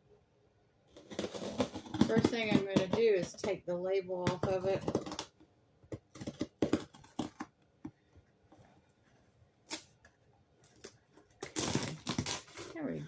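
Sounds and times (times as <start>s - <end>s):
label peeling off cardboard box: 0.9s - 2.7s, 9.6s - 12.8s.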